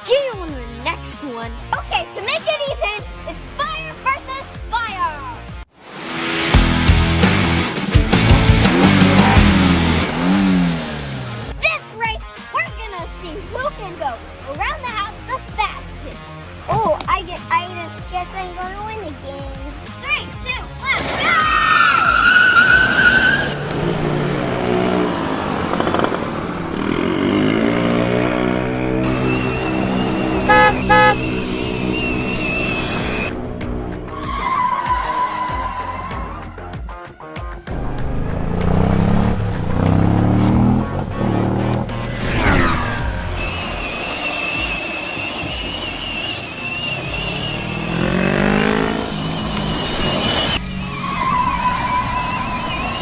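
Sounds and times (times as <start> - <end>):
truck engine revving: 6.3 - 11.6, 20.7 - 36.6, 37.7 - 53.0.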